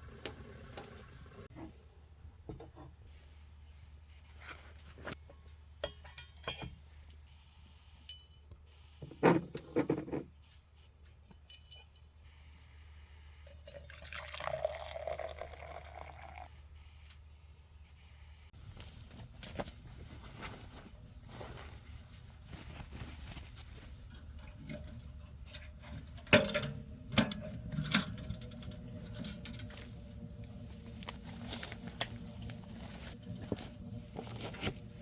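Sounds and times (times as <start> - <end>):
liquid being poured: 13.9 - 16.5.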